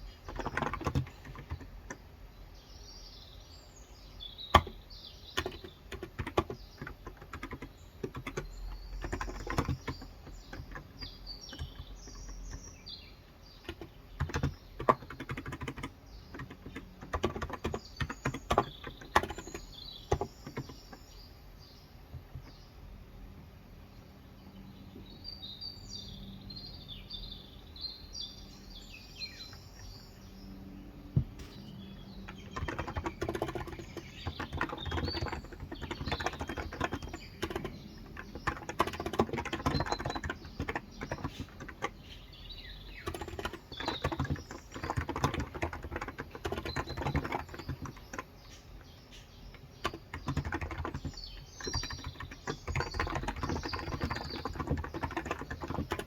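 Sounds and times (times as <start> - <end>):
typing on a keyboard: 0.0 - 2.0, 4.5 - 12.9, 13.5 - 21.0, 31.4 - 56.0
small birds chirping: 0.0 - 56.0.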